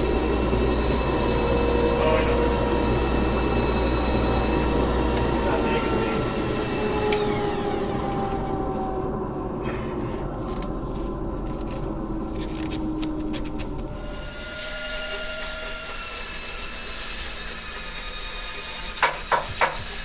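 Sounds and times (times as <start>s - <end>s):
power tool motor running: 0.0s - 9.1s, 12.4s - 20.0s
rubbing on wood: 15.9s - 20.0s.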